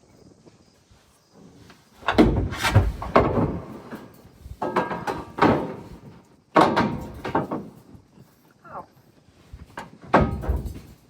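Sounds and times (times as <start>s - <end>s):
heavy metal parts clanking: 10.2s - 11.0s.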